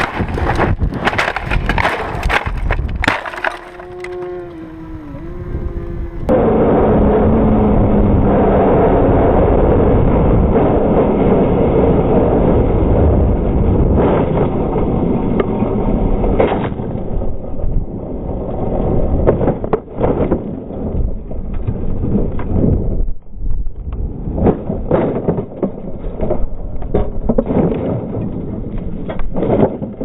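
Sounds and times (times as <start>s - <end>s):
motorcycle tumbling knocks and thuds: 24.3s - 30.0s.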